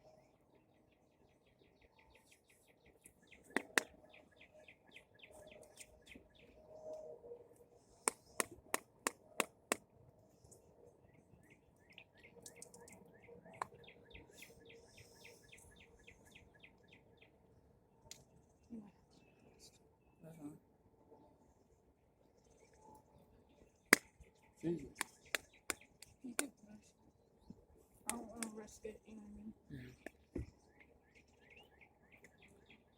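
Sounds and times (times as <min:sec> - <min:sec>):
faint bird chirping: 0:10.4 - 0:17.4.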